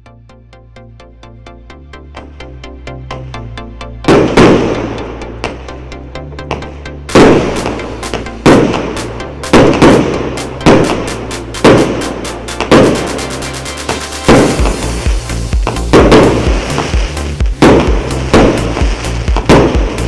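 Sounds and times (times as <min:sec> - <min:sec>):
electronic dance music: 0:00.0 - 0:20.0
fireworks bangs: 0:06.5 - 0:20.0.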